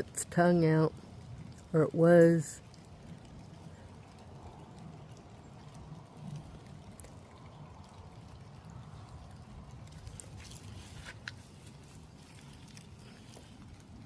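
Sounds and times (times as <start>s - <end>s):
faint trickling water: 0.0s - 14.0s.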